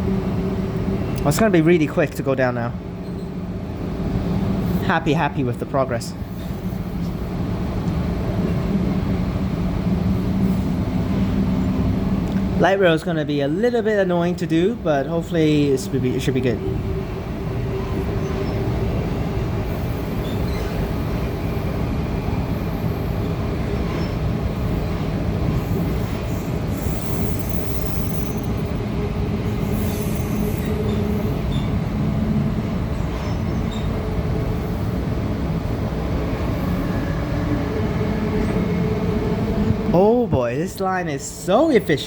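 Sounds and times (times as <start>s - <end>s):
low train hum: 0.0s - 42.0s
train wheels rumbling on track: 0.0s - 42.0s.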